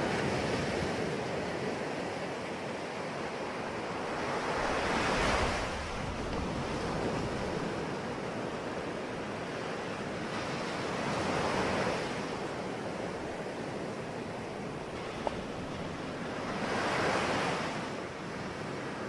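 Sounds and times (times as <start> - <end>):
ocean waves breaking on shore: 0.0 - 19.0.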